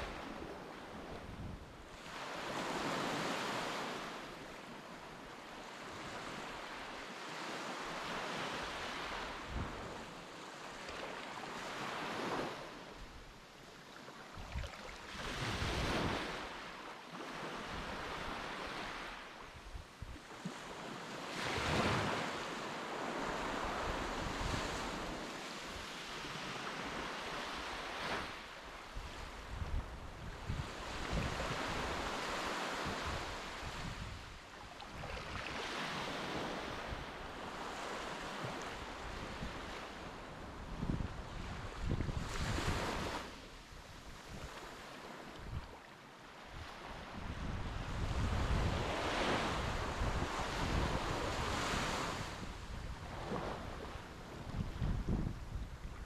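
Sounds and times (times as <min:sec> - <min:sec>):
wind gusting on microphone: 0:40.4 - 0:44.6, 0:46.6 - 0:56.0.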